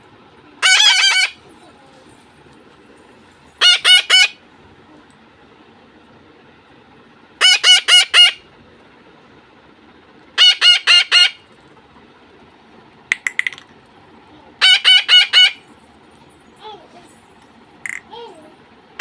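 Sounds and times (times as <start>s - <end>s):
parakeets screeching: 0.6s - 1.4s, 3.6s - 4.4s, 7.4s - 8.4s, 10.4s - 11.4s, 14.6s - 15.7s.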